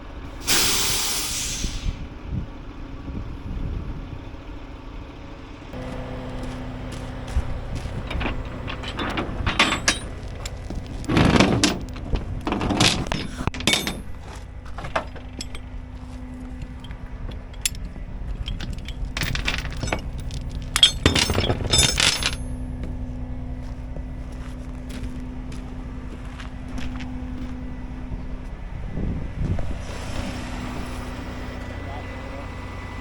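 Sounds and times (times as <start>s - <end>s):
truck engine idling: 0.0s - 33.0s
metal clinking and rattling: 5.8s - 23.7s.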